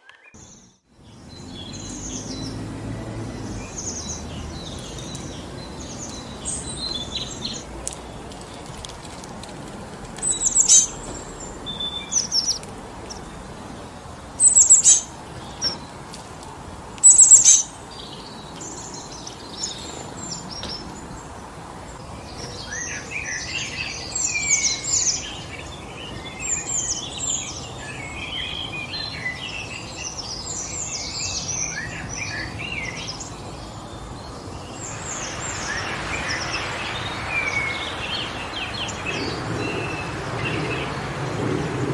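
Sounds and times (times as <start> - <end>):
songbirds chirping: 0.0 - 41.9
wind through trees: 0.0 - 41.9.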